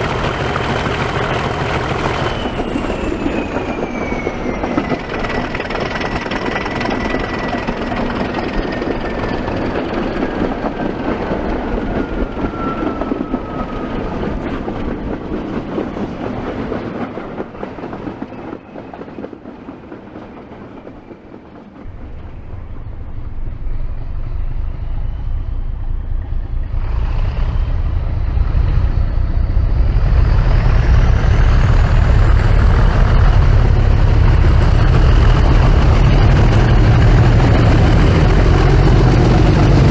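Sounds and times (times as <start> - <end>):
diesel locomotive engine running: 0.0 - 39.9
whistling tone sinking in pitch: 1.8 - 14.6, 22.0 - 30.4.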